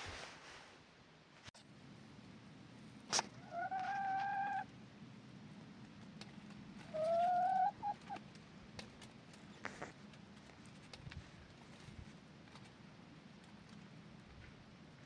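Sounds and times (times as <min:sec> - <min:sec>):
chickens calling: 0:03.2 - 0:04.7, 0:06.8 - 0:08.4.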